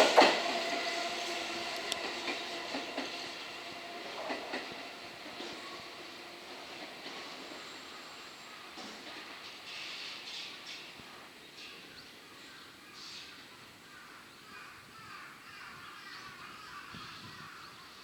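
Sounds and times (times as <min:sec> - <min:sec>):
faint outdoor background noise: 0:00.0 - 0:18.0
crow cawing: 0:13.8 - 0:17.8.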